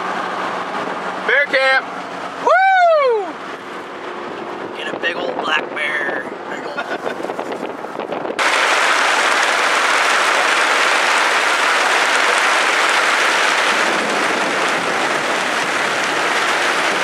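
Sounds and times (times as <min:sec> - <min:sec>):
loud rain pouring: 0:08.4 - 0:17.0.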